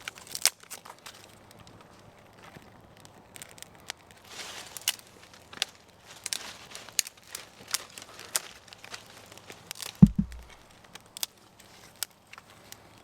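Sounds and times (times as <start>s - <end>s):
dry wood crackling: 0.3s - 12.5s
heavy low thud: 10.0s - 10.6s.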